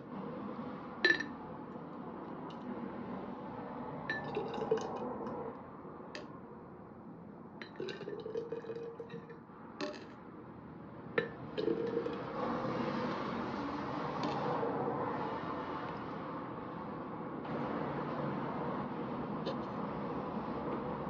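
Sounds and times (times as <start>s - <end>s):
glass and dishes clinking: 1.1s - 1.3s, 11.2s - 12.0s.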